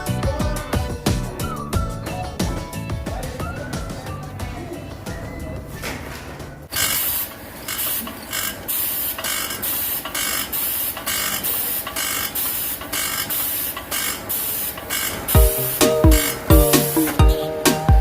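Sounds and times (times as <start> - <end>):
tool hissing in short bursts: 6.7 - 15.4.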